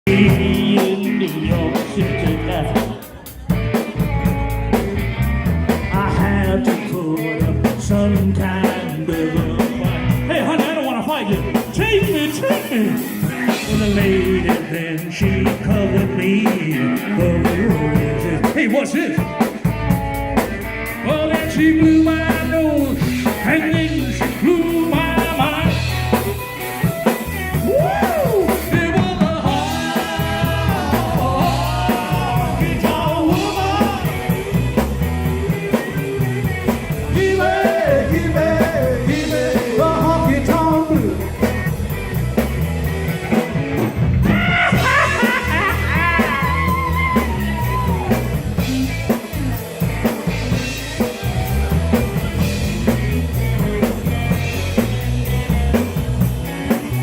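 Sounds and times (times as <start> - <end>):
rock and roll song with singing: 0.0 - 57.0.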